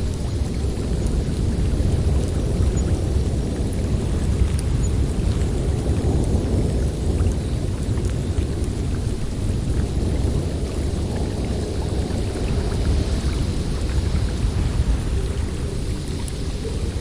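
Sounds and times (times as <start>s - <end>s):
wind blowing through forest: 0.0s - 17.0s.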